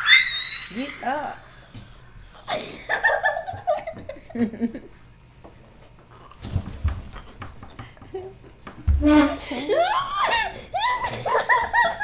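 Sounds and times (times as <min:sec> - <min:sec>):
low thumps of bodies bumping: 0:06.4 - 0:09.4
people laughing and squealing: 0:09.4 - 0:12.0.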